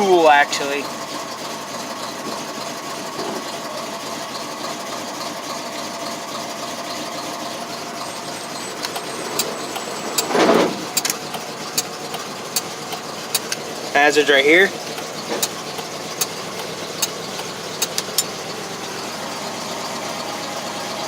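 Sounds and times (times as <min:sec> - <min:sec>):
truck engine idling: 0:00.0 - 0:21.0
sharp clicks: 0:08.7 - 0:13.6, 0:14.9 - 0:18.3.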